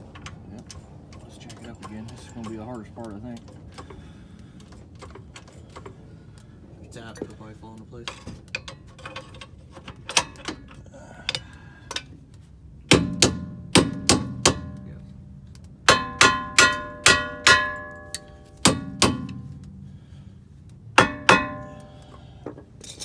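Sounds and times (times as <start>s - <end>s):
hammer striking steel: 12.9s - 20.2s, 21.0s - 22.4s.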